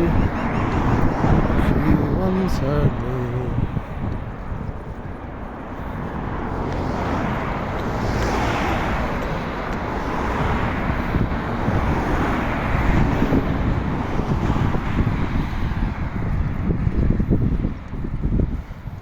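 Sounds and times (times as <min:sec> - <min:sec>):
road traffic noise: 0:00.0 - 0:19.0
wind rushing over microphone: 0:00.0 - 0:19.0.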